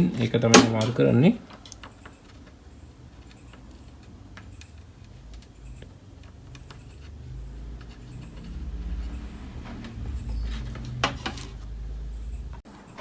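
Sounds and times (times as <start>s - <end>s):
low rumble: 7.1s - 12.6s.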